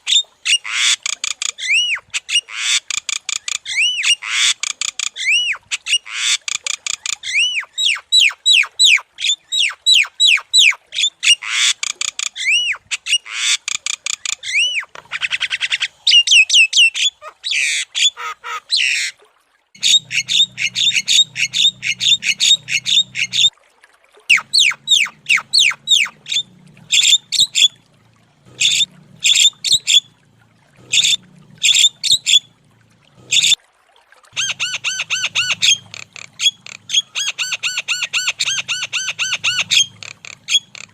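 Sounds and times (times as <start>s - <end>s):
myna bird whistling and squawking: 0.0s - 19.1s, 19.8s - 23.5s, 24.3s - 27.8s, 28.6s - 30.1s, 30.9s - 32.5s, 33.3s - 33.6s, 34.4s - 40.9s
low hum: 24.4s - 33.6s.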